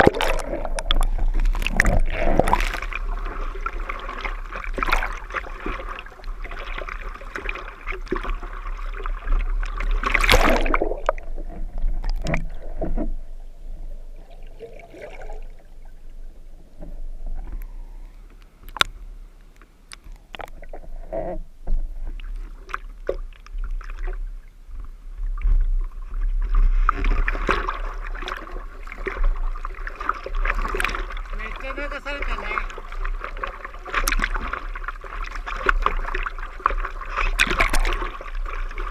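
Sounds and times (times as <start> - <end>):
loud splash: 0.0 - 3.2, 10.0 - 11.3
seawater splashing and rushing: 0.0 - 13.0, 26.5 - 38.9.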